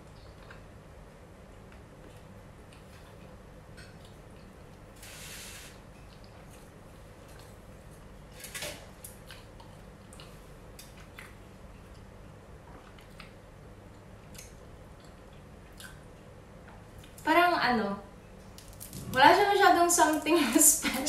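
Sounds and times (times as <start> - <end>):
quiet chewing: 0.0 - 0.7, 9.0 - 17.2.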